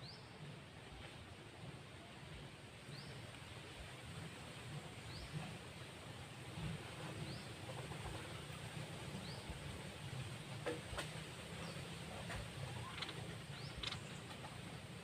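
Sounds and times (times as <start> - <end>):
songbird chirping and trilling: 12.8 - 14.4.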